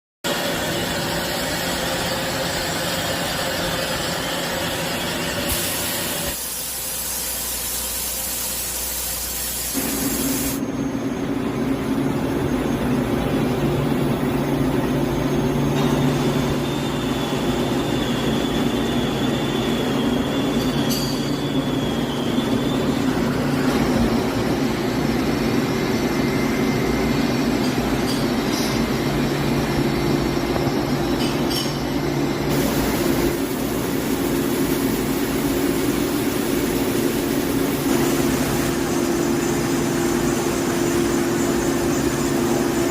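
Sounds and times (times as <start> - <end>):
machine tool hum and hiss: 0.3 - 42.9
thin high whine: 0.3 - 42.9.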